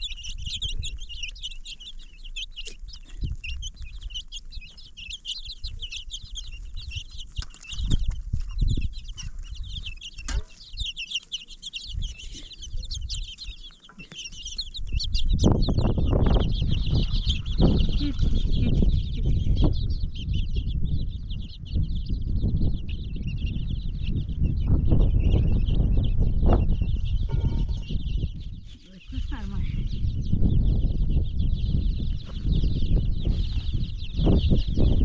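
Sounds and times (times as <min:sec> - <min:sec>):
chickens chirping: 0:00.0 - 0:35.0
low rumbling knocks: 0:26.2 - 0:28.4.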